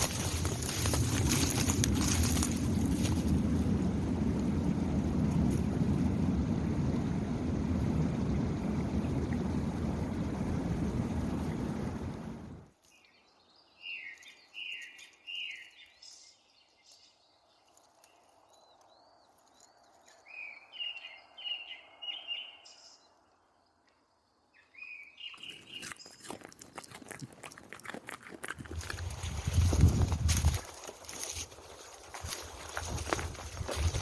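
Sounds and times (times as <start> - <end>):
crunching footsteps: 0.0 - 3.6, 25.4 - 34.0
songbird calling: 12.9 - 23.9, 24.5 - 26.3.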